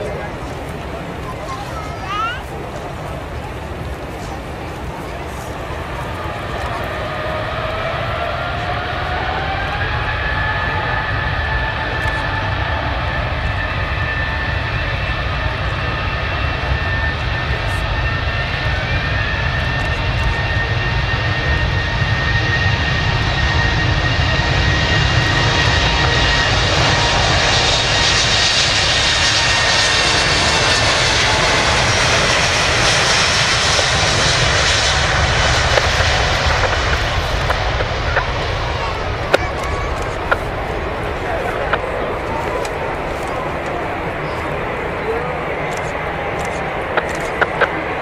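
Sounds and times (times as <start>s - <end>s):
jet engines whining and roaring: 0.0s - 48.0s.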